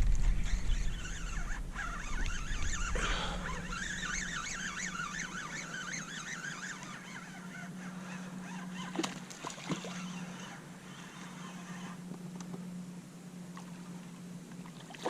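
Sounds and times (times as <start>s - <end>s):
steady low hum: 0.0s - 15.0s
bird calling in wavering notes: 0.3s - 12.1s.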